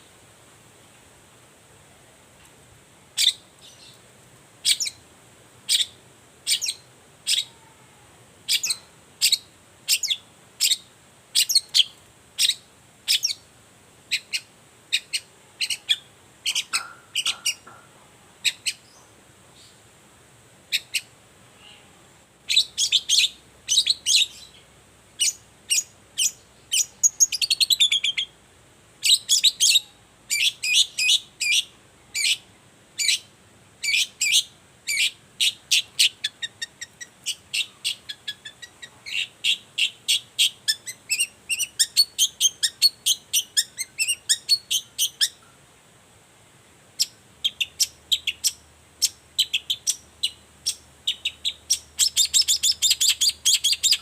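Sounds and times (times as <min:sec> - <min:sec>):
bird rattle call: 0:16.4 - 0:17.9.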